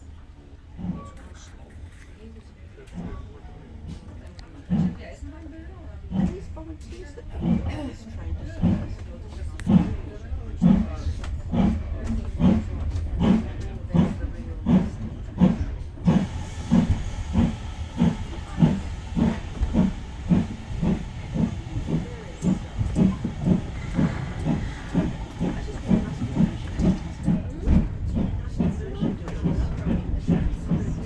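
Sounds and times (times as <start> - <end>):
steam locomotive chuffing: 0.5 - 31.0
steam hissing: 9.6 - 31.0.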